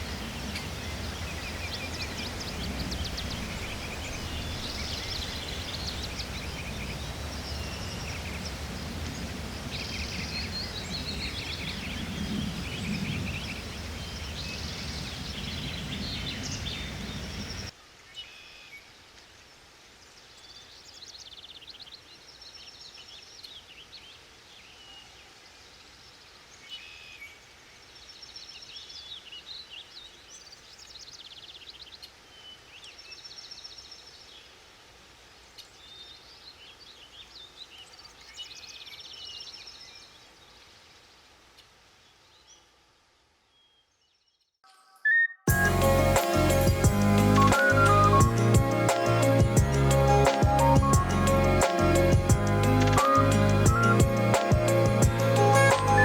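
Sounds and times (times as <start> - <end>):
steady rushing noise: 0.0 - 17.7, 45.5 - 56.0
small birds chirping: 0.0 - 34.6, 35.5 - 56.0.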